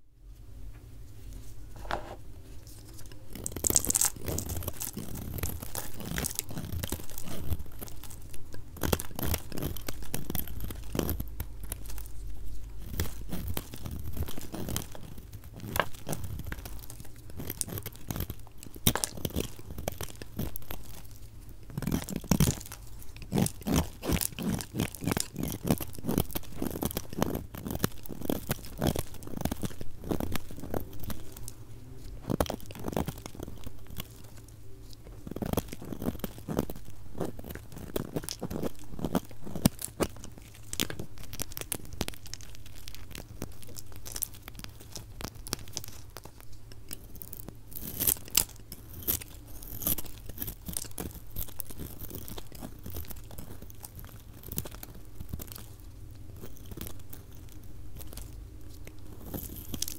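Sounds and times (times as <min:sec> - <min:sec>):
blade cutting dry soap: 0:02.8 - 0:34.4.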